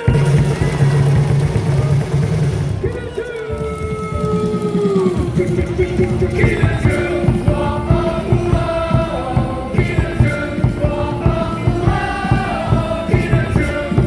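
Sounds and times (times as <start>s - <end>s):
music with drum beat: 0.0s - 14.0s
crowd singing along: 2.8s - 14.0s.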